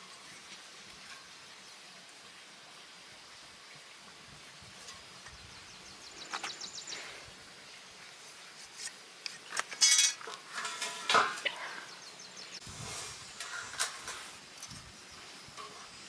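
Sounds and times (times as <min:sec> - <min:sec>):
metal bars clinking and clanking: 0:09.5 - 0:11.7, 0:12.9 - 0:14.9, 0:15.6 - 0:16.0.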